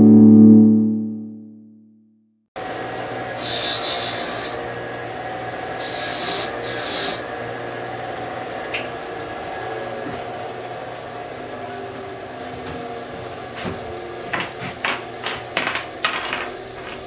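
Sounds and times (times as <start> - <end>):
rasping strokes across a surface: 3.4 - 4.7, 5.8 - 7.3.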